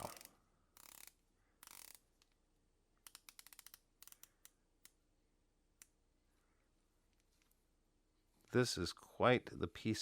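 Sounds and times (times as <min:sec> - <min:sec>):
watch bezel ratchet clicks: 0:00.0 - 0:02.3, 0:03.0 - 0:05.0.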